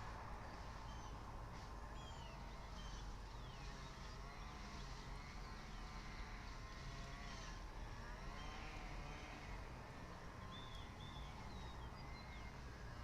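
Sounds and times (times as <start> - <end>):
songbird chirps: 1.9 - 6.1, 10.4 - 12.7.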